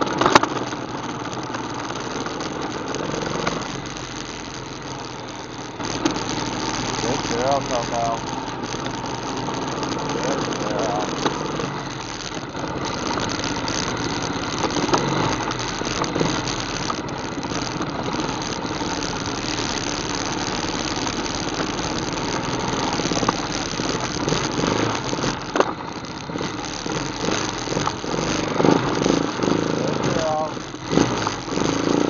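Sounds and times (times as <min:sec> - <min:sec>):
atv engine running: 0:00.0 - 0:32.0.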